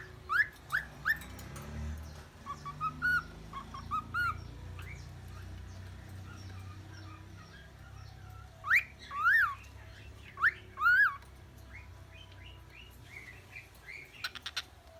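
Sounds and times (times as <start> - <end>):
cockatiel whistling: 0.0 - 1.2, 2.4 - 5.0.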